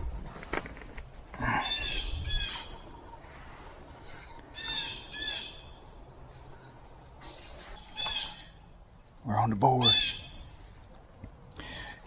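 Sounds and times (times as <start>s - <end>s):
harsh squawking bird calls: 1.4s - 9.0s, 9.6s - 10.8s.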